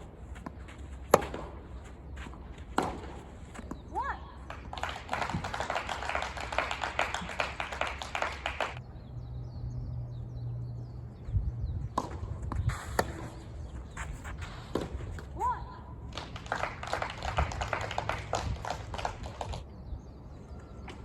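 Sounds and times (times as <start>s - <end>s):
spectators clapping: 4.4s - 8.8s, 16.1s - 19.6s.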